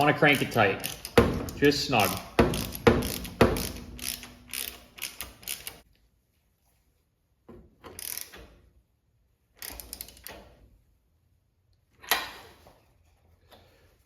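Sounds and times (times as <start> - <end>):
socket ratchet clicking: 0.3 - 5.8.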